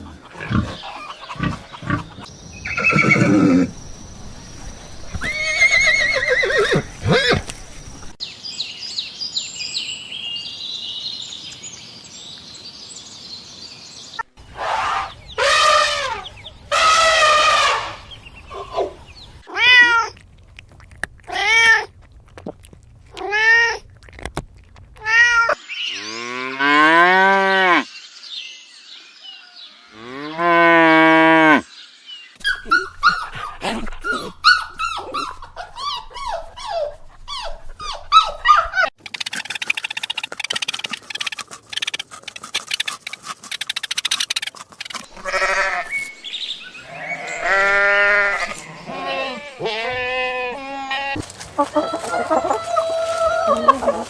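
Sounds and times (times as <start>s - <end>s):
mixed animal calls: 14.5s - 19.1s, 37.3s - 54.0s.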